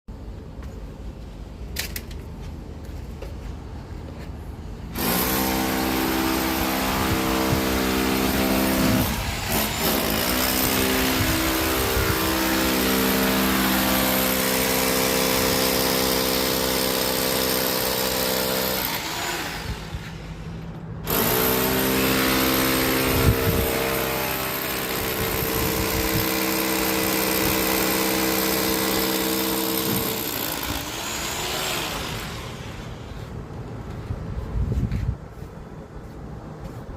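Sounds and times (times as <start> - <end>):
power tool motor whining: 5.0 - 20.4, 21.1 - 33.1.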